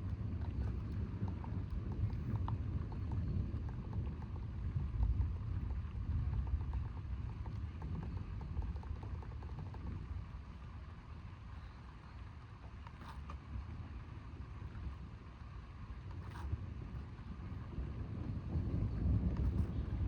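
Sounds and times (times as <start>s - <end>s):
faint ticks: 0.2s - 10.2s.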